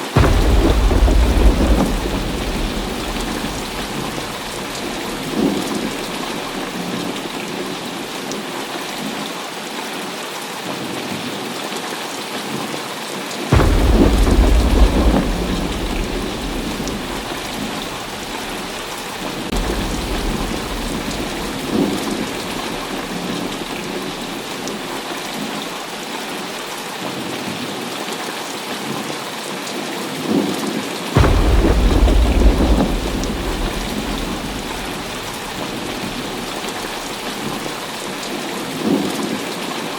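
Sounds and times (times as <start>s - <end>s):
thunder: 0.0s - 8.6s, 13.5s - 25.7s, 31.2s - 39.3s
heavy rain: 0.0s - 39.9s.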